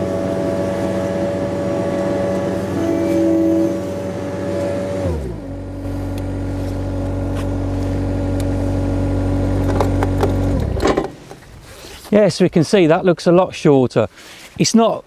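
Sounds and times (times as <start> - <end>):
engine running down to a stop: 0.0 - 11.5
mower engine idling: 0.0 - 11.7.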